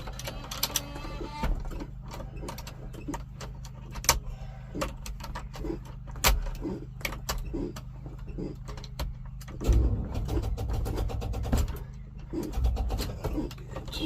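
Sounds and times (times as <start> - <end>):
car engine idling: 0.0 - 14.0
sharp clicks and knocks: 0.0 - 14.0.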